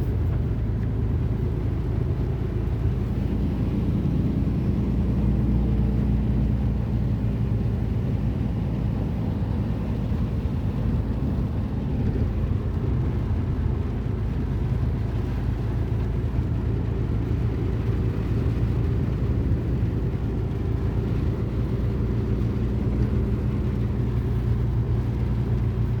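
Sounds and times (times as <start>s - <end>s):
road noise: 0.0s - 26.0s
vehicle engine rumble: 0.0s - 26.0s.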